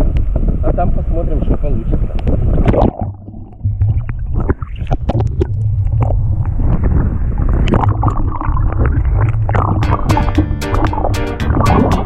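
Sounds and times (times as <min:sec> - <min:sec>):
strong wind buffeting microphone: 0:00.0 - 0:02.9, 0:03.6 - 0:09.7.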